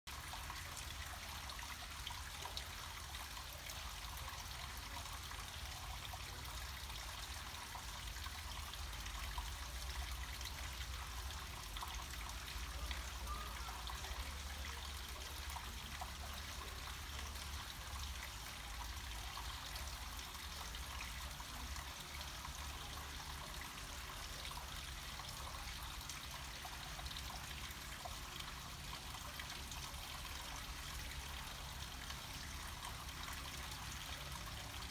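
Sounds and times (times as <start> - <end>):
water trickling down a stream: 0.1 - 34.9.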